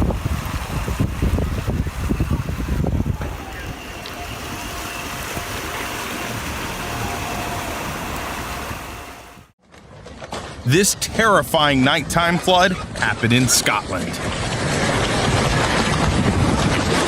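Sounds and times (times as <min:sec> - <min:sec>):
vehicle driving through floodwater: 0:00.0 - 0:09.6
engine: 0:00.0 - 0:10.7, 0:12.2 - 0:17.0.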